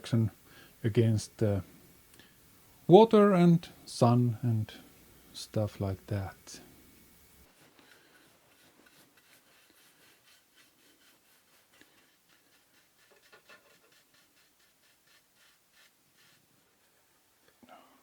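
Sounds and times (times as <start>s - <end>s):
rubbing strokes on wooden slats: 7.5s - 17.0s.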